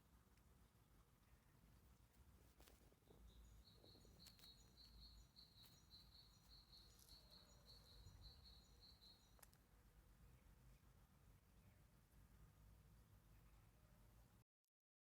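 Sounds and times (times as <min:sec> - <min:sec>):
faint high animal chirps: 0:03.0 - 0:09.5.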